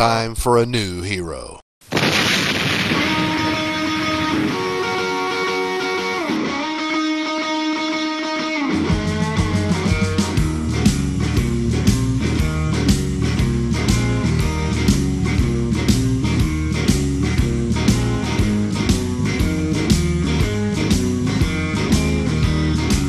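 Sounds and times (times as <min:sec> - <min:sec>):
bending electric guitar chords: 0:02.6 - 0:23.0
strummed guitar: 0:03.0 - 0:23.0
bass: 0:08.7 - 0:23.0
drum beat: 0:08.9 - 0:23.0.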